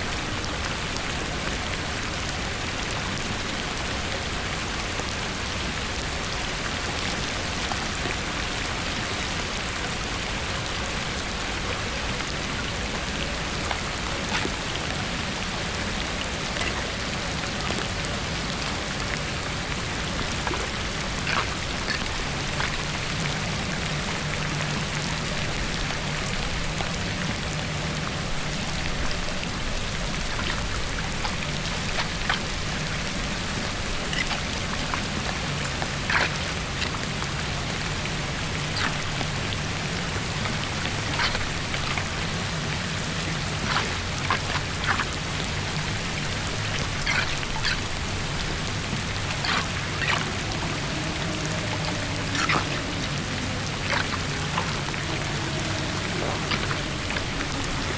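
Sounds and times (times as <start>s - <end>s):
rain on hard surface: 0.0s - 57.9s
low hum: 17.1s - 57.9s.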